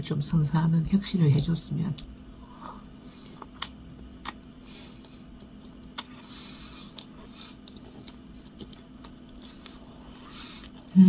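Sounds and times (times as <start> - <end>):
low steady hum: 0.0 - 11.0
person chewing: 2.0 - 11.0
wet mouth clicks and smacks: 3.4 - 4.4, 5.0 - 6.2.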